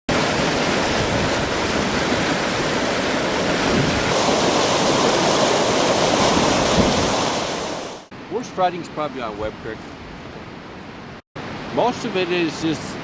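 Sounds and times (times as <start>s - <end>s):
floodwater rushing in creek: 0.1s - 9.4s.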